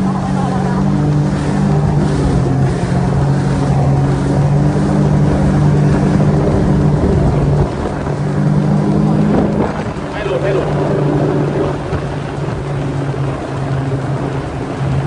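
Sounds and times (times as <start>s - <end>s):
watercraft engine running: 0.0s - 15.0s
wind and water rushing: 0.0s - 15.0s.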